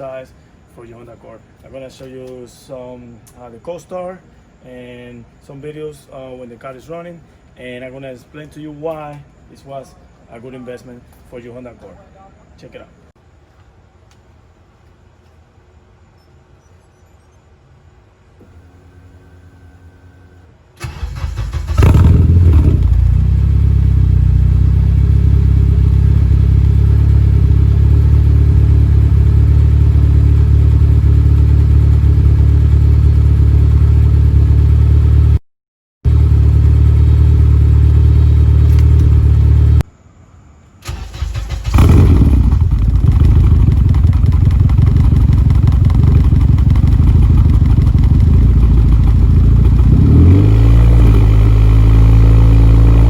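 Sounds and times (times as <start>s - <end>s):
car engine starting and idling: 18.4s - 35.4s, 36.1s - 39.8s, 40.8s - 53.0s.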